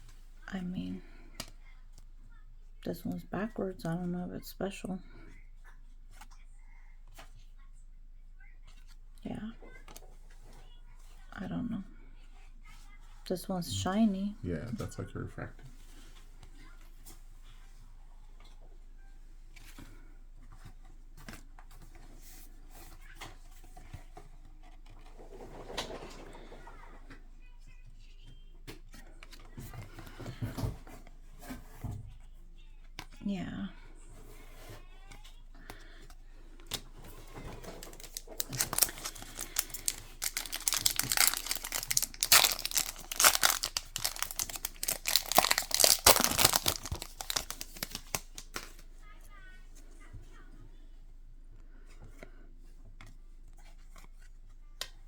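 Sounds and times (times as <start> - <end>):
trading cards tapping and rustling: 34.5 - 48.9
wrapper crinkling and tearing: 37.2 - 48.8.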